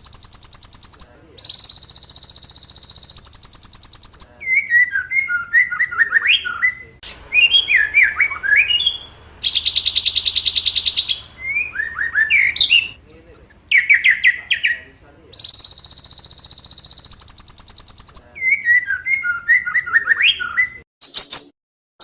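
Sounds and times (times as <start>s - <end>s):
bird whistling song: 0.0s - 21.6s
buzzy high bird trill: 0.0s - 21.6s.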